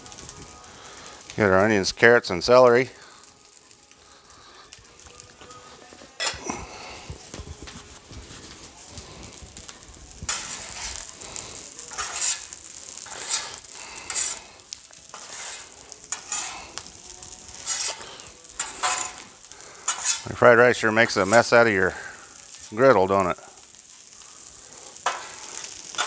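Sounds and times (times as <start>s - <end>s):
food sizzling on a griddle: 0.0s - 26.0s
spatula scraping a steel griddle: 0.0s - 26.0s.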